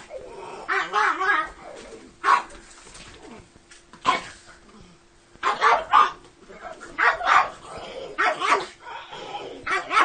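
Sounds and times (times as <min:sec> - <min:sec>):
small dog barking: 0:00.7 - 0:01.5, 0:02.2 - 0:02.6, 0:05.4 - 0:08.8, 0:09.6 - 0:10.0.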